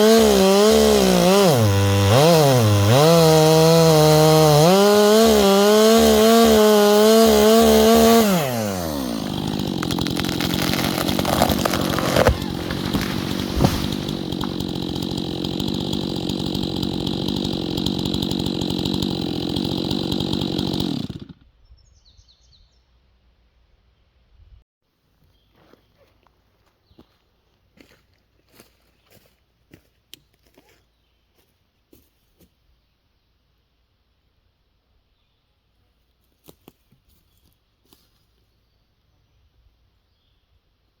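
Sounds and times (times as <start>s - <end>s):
chainsaw running: 0.0s - 21.4s.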